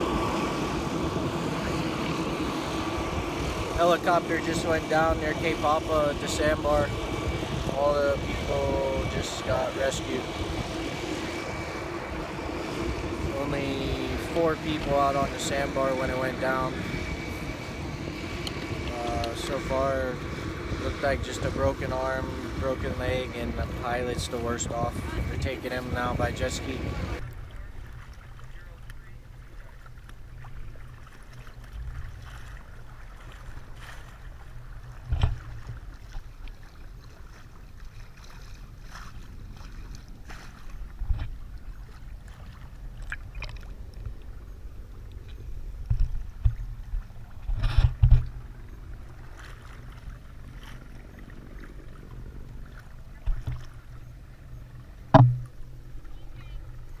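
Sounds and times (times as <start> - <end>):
wind on microphone: 0.0 - 27.3
water rumble: 0.0 - 57.0.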